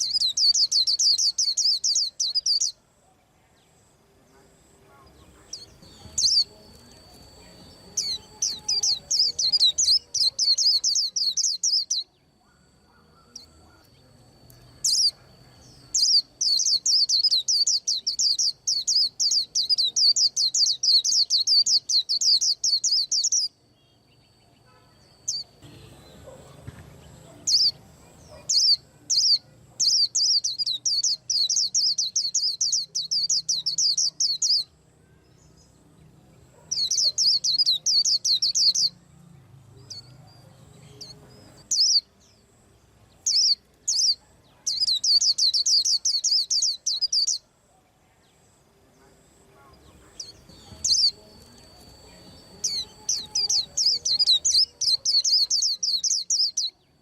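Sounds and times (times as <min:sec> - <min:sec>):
bird singing fast high chirps: 0:00.0 - 0:02.8, 0:05.4 - 0:14.0, 0:14.7 - 0:23.6, 0:27.4 - 0:34.8, 0:36.6 - 0:39.0, 0:41.0 - 0:42.2, 0:43.2 - 0:47.4, 0:50.1 - 0:57.0
faint high whine: 0:00.0 - 0:55.2.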